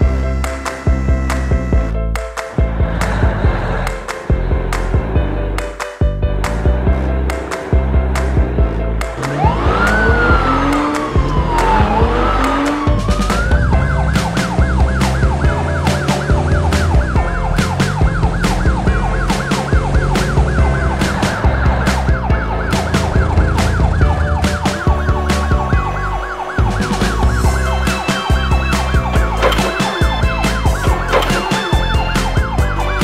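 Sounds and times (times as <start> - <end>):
background music with beat: 0.0 - 33.0
police siren yelping: 9.0 - 33.0
sliding pitch glides: 27.6 - 32.5.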